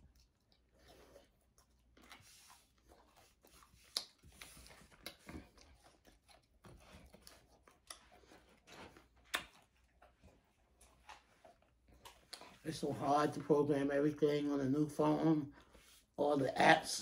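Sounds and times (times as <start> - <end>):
person chewing food: 0.0 - 12.7.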